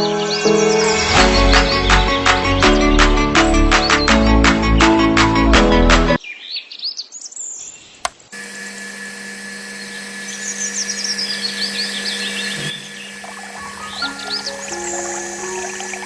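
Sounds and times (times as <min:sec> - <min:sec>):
small birds chirping: 0:06.2 - 0:08.1, 0:09.8 - 0:16.0.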